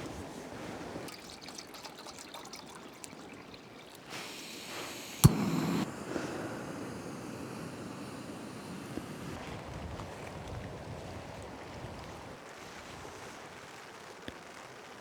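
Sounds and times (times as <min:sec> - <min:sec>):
gas hissing: 0:02.6 - 0:09.4
gas burner catching with a whoosh: 0:04.0 - 0:09.4
piezo igniter click: 0:04.1 - 0:09.4.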